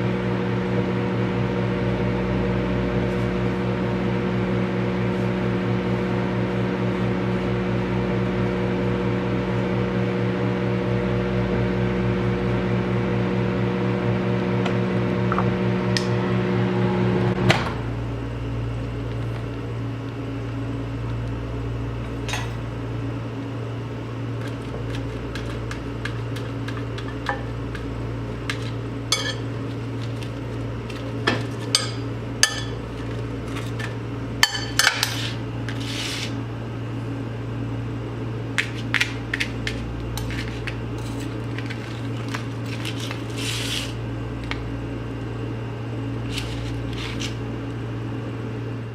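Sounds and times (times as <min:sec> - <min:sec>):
microwave oven humming: 0:00.0 - 0:48.9.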